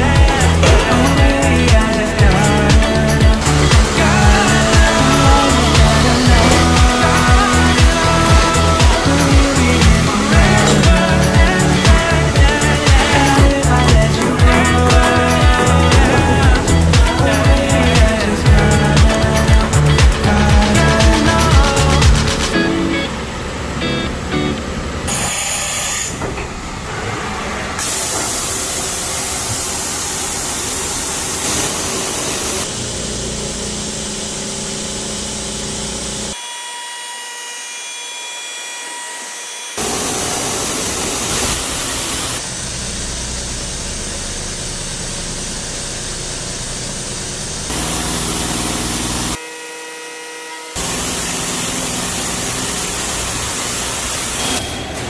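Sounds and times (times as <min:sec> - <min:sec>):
machine cutting steel: 0:00.0 - 0:24.2, 0:25.0 - 0:33.1, 0:33.7 - 0:42.6, 0:47.7 - 0:55.0
coolant hissing: 0:00.0 - 0:32.7, 0:39.8 - 0:42.6, 0:47.5 - 0:49.4, 0:50.8 - 0:55.0.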